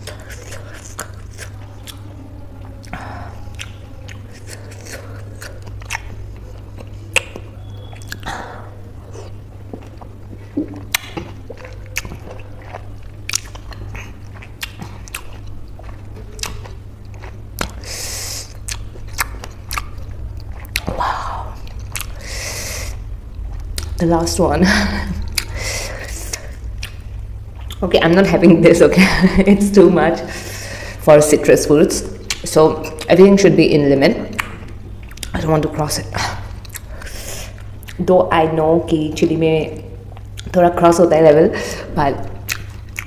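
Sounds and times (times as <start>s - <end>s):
wet chewing and mouth clicks: 0.0s - 8.4s, 9.1s - 24.0s, 25.2s - 28.0s, 32.1s - 33.2s, 34.3s - 35.4s, 36.4s - 38.1s, 40.1s - 40.6s, 42.3s - 43.0s
steady low hum: 0.0s - 43.0s
hissing breaths: 22.1s - 23.0s.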